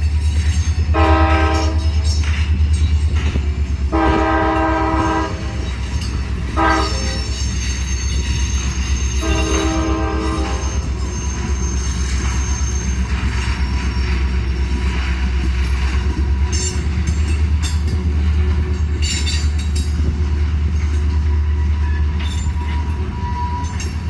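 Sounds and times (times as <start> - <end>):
train rumbling: 0.0 - 24.0
locomotive horn blasts: 0.9 - 2.1, 3.9 - 5.6, 6.5 - 7.4, 9.2 - 11.0.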